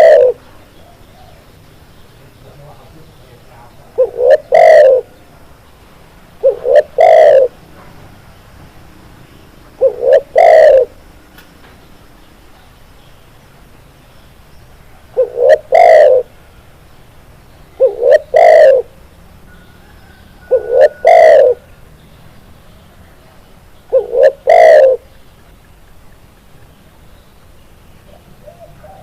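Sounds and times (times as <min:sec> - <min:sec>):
dove cooing: 0:00.0 - 0:01.4, 0:03.7 - 0:05.3, 0:06.4 - 0:07.6, 0:09.8 - 0:11.0, 0:15.1 - 0:16.4, 0:17.8 - 0:21.7, 0:23.9 - 0:25.2, 0:28.0 - 0:29.0.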